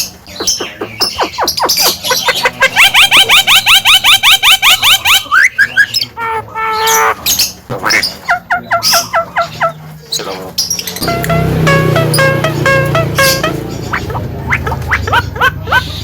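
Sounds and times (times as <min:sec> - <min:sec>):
myna bird calling: 0:00.0 - 0:09.9, 0:11.0 - 0:16.0
background music: 0:11.0 - 0:14.9.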